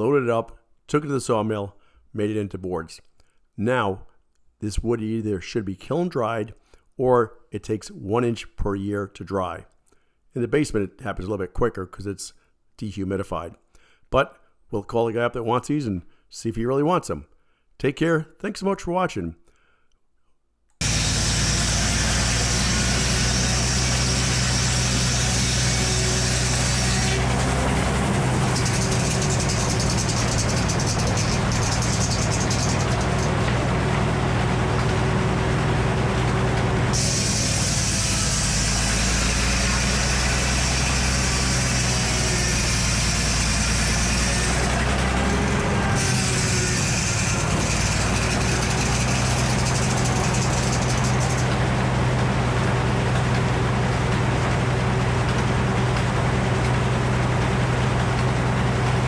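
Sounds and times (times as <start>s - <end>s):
sawmill engine running: 20.8s - 59.0s.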